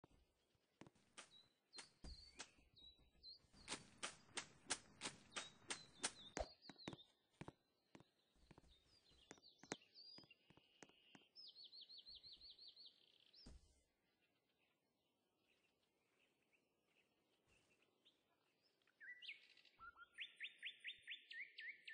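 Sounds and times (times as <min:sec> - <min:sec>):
faint high bird chirps: 0:01.2 - 0:14.8, 0:15.4 - 0:21.9
sharp clicks: 0:03.6 - 0:06.5
bird trill: 0:19.0 - 0:21.9.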